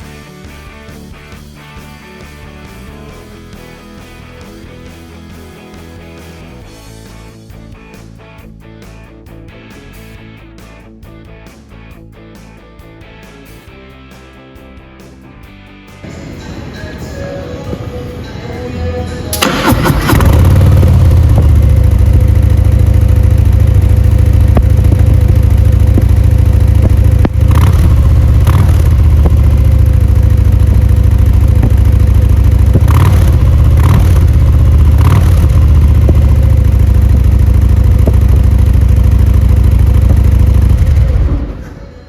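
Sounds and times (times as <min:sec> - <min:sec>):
engine blips: 0:16.0 - 0:42.0
motorcycle exhaust rumble: 0:19.3 - 0:42.0.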